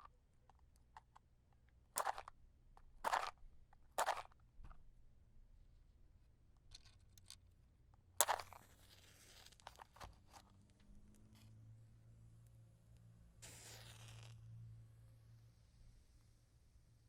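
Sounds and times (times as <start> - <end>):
clicks of handling matches: 8.2 - 10.5
match striking: 13.4 - 14.4.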